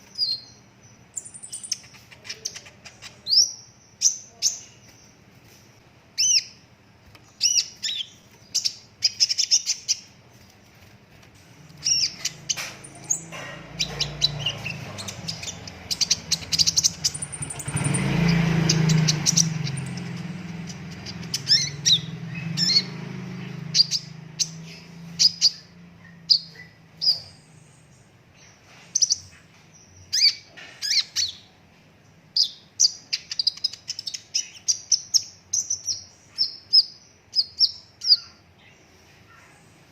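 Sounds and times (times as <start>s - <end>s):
bird chirping and trilling: 0.0s - 5.2s, 6.2s - 10.5s, 11.7s - 31.6s, 32.3s - 39.6s.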